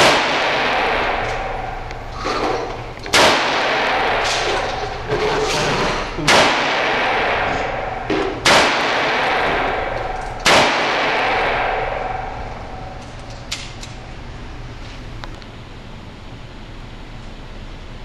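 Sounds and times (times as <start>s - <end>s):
loud gunshots echoing: 0.0s - 2.1s, 2.8s - 14.2s
faint gunshots: 3.1s - 4.8s, 6.2s - 12.3s.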